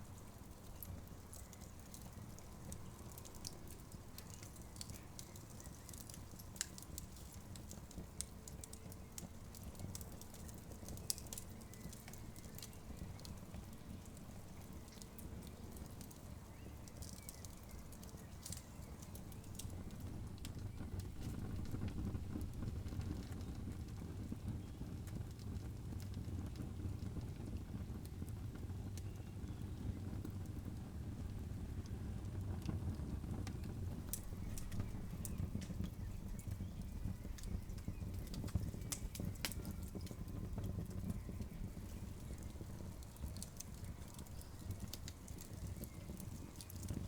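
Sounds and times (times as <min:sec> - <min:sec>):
campfire crackling and popping: 0:00.0 - 0:47.0
low steady fire rumble: 0:00.0 - 0:47.0.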